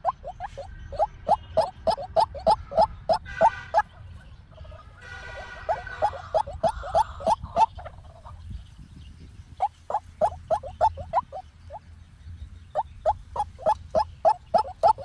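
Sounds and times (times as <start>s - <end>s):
waterhen croaking calls: 0.0s - 3.9s, 5.1s - 8.0s, 9.6s - 11.8s, 12.8s - 15.0s.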